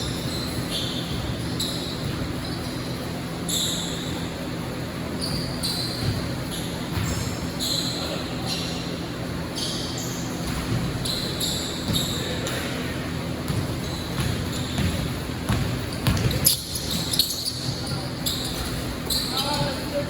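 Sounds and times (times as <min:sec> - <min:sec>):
basketball bouncing: 0:00.0 - 0:02.4, 0:06.0 - 0:07.4, 0:10.4 - 0:11.0, 0:13.4 - 0:19.9
shoe squeaks: 0:00.0 - 0:20.0.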